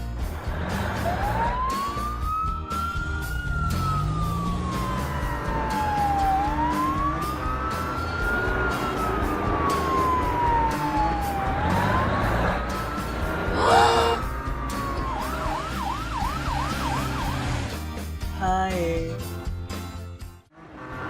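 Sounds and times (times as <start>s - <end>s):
background music: 0.0s - 20.5s
wailing siren: 1.0s - 17.6s.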